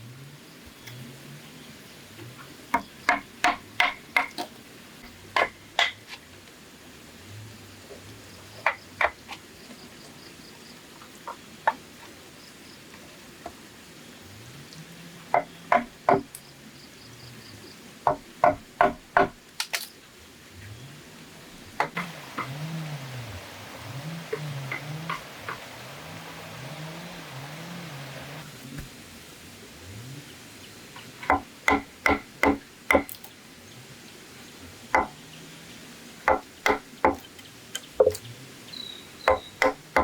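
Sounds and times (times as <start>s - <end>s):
hand tool striking bamboo: 21.8s - 22.7s, 23.8s - 27.1s, 31.2s - 33.2s, 36.3s - 37.3s, 39.3s - 40.0s.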